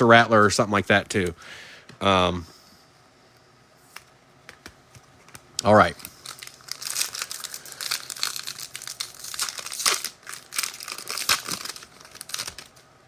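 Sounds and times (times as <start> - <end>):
foil wrapper tearing and crinkling: 6.0 - 12.8.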